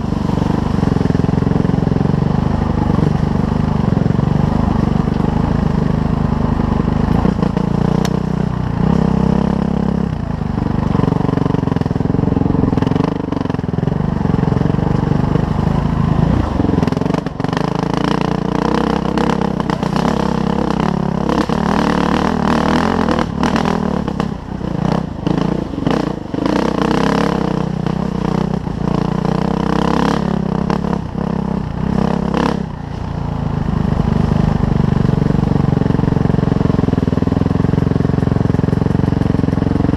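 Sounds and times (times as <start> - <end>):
dirt bike engine revving: 10.8 - 32.9.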